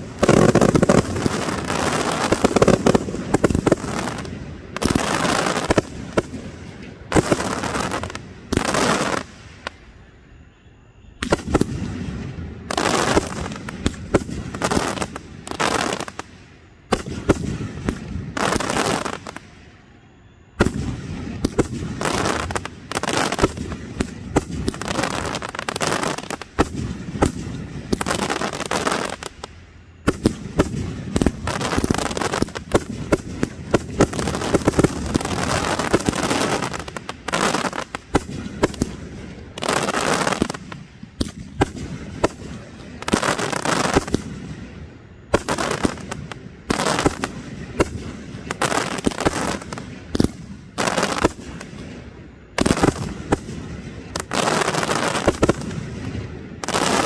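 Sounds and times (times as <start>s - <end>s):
fireworks bursts and crackling: 0.0s - 10.4s, 11.1s - 19.8s, 20.6s - 57.0s.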